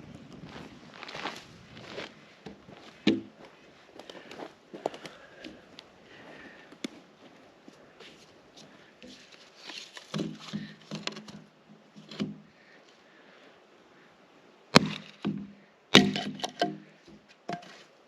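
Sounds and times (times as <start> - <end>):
dry wood creaking and snapping: 9.1 - 12.4, 16.0 - 17.6
sharp wood cracks: 14.7 - 16.8.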